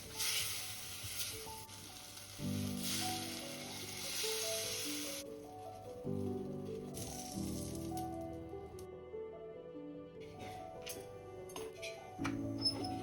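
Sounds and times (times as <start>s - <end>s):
food sizzling in a hot pan: 0.0s - 5.3s, 7.0s - 8.0s
soft background music: 0.0s - 13.0s.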